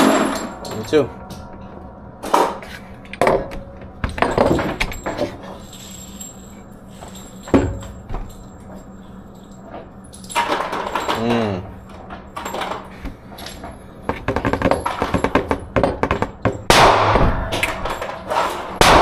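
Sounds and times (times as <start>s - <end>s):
steady low hum: 0.0s - 19.0s
sharp bangs: 16.7s - 19.0s.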